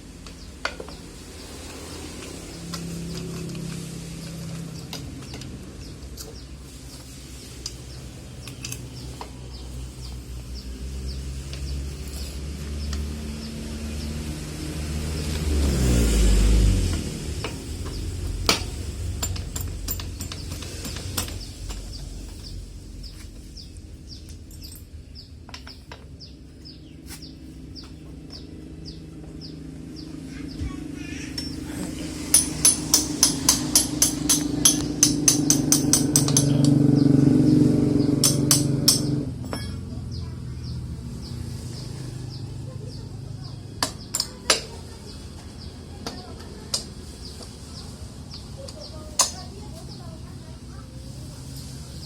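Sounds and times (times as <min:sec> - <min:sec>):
sharp metallic clinks: 0:17.4 - 0:22.1, 0:24.3 - 0:25.7, 0:31.3 - 0:37.1, 0:38.0 - 0:40.0.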